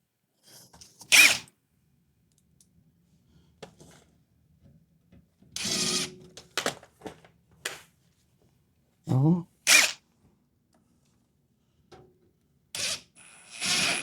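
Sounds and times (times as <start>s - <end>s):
cordless drill driving screws: 1.1s - 1.5s, 5.6s - 6.1s, 9.7s - 10.0s, 12.8s - 14.0s.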